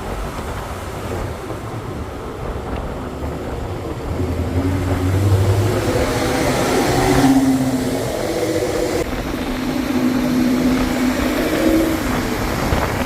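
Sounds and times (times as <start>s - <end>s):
car engine running: 4.0s - 13.0s.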